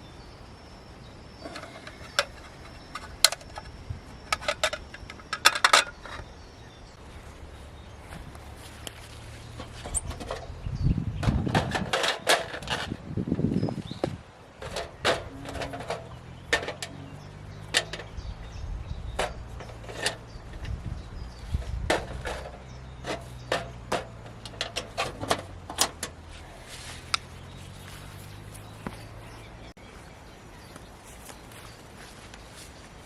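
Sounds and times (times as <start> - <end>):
steady low hum: 0.0 - 12.0
sharp knocks and clicks: 8.2 - 13.0, 14.0 - 26.3.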